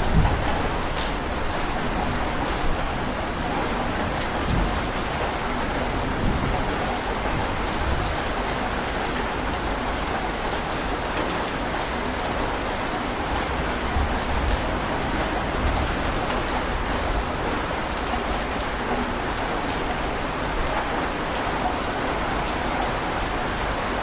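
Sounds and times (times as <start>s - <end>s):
thunder rumbling: 0.0s - 2.9s
heavy rain falling: 0.0s - 24.0s.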